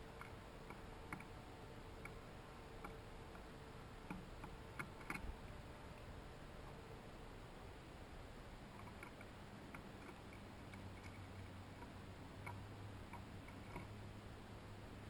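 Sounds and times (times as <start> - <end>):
steady low hum: 0.0 - 15.0
pecking ticks and taps: 0.1 - 1.3, 2.0 - 2.2, 2.8 - 5.3, 8.8 - 13.9.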